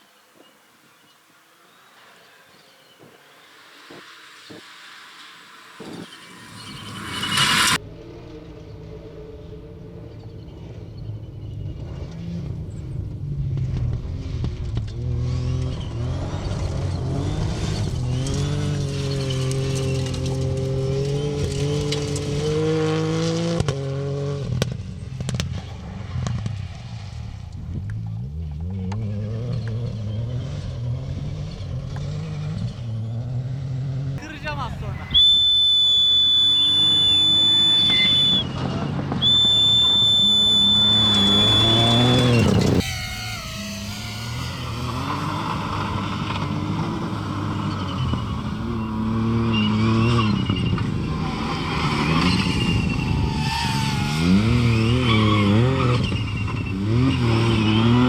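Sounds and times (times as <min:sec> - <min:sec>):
rally car engine at full throttle: 0:02.1 - 0:34.3, 0:35.1 - 0:58.0
shrill whistle blasts: 0:03.1 - 0:07.8, 0:34.4 - 0:38.6, 0:39.2 - 0:50.4.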